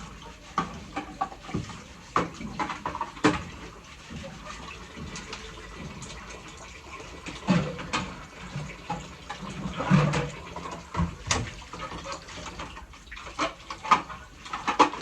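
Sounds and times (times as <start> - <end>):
water running and splashing: 0.0 - 15.0
items knocking and clattering: 0.6 - 3.6, 7.4 - 15.0.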